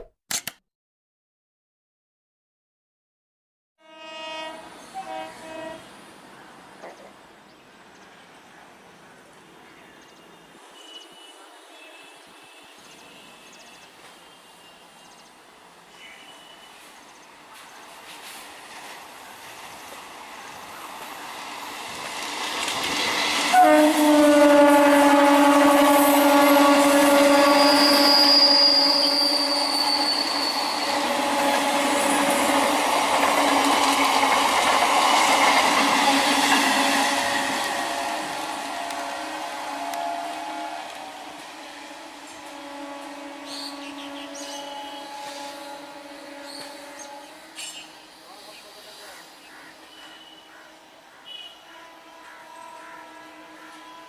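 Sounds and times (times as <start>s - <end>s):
distant train rumble and hiss: 4.4s - 54.0s
high wheel squeal: 27.4s - 32.2s.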